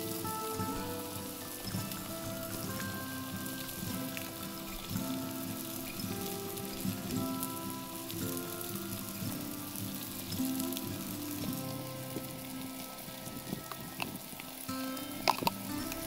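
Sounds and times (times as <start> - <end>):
background music: 0.0 - 16.0
food frying on a griddle: 0.0 - 16.0.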